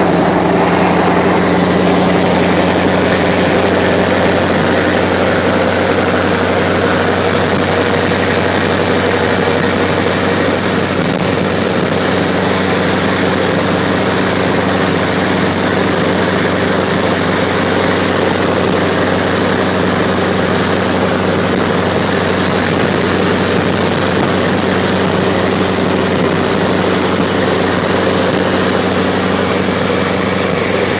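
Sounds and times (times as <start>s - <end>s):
road noise: 0.0s - 30.9s
vehicle engine drone: 0.0s - 30.9s.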